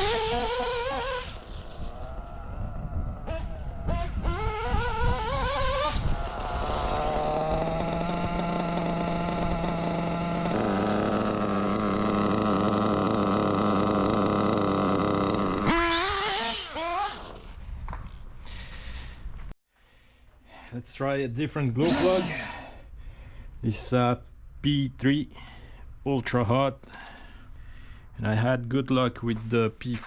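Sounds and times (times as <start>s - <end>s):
model engine running unevenly: 6.3s - 15.7s.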